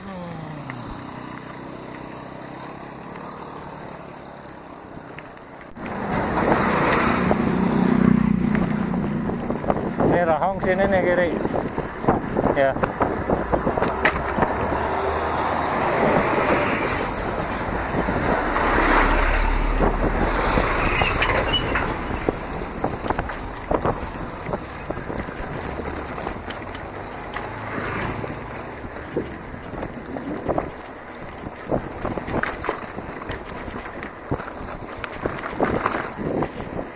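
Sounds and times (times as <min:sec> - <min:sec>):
wind and tyre noise: 0:00.0 - 0:36.9
small rattles and knocks: 0:19.8 - 0:36.9.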